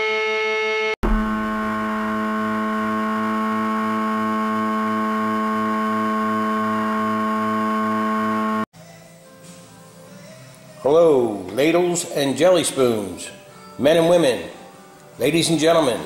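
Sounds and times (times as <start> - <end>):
steady drone of held tones: 0.0 - 8.7.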